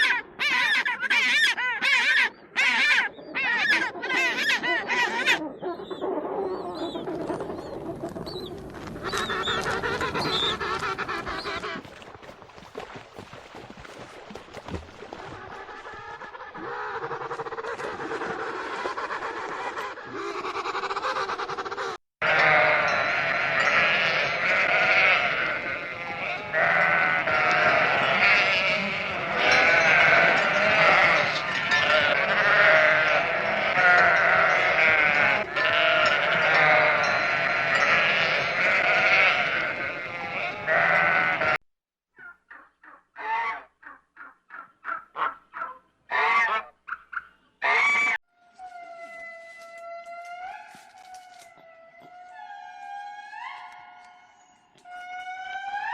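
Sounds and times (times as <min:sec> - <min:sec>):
flock bleating: 0:22.2 - 0:41.6.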